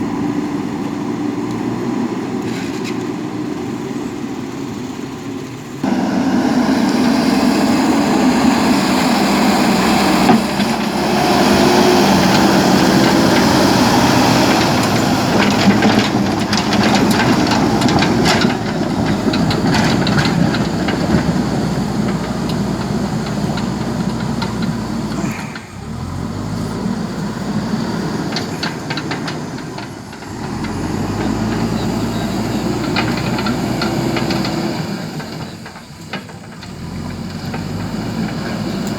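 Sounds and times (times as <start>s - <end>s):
diesel engine under load: 0.0s - 38.9s
metallic clanks and knocks: 10.2s - 25.8s.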